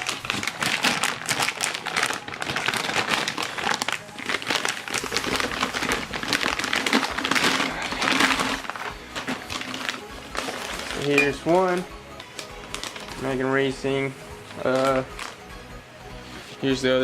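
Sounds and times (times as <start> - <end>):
packing paper crinkling: 0.0 - 15.5.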